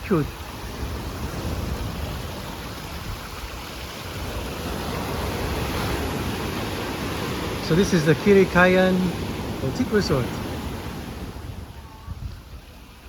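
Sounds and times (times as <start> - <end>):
surf breaking on beach: 0.0 - 13.0
wind on microphone: 0.3 - 7.8, 10.2 - 13.0.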